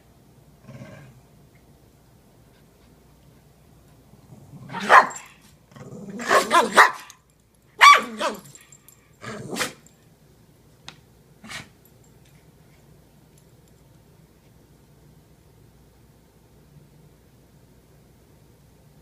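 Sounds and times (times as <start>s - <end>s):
dogs barking and growling: 4.2s - 7.1s, 7.8s - 9.9s.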